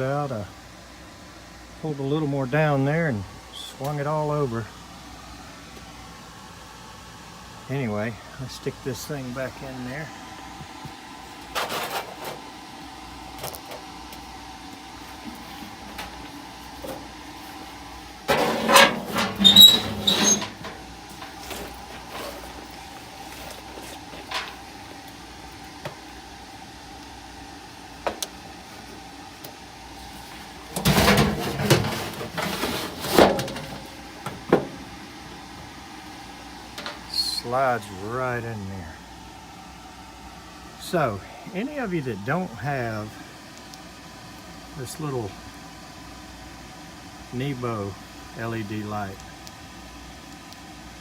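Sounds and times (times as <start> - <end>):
high squeaks: 18.3 - 20.7
sheet metal scraping and clattering: 18.3 - 22.6, 30.7 - 33.9.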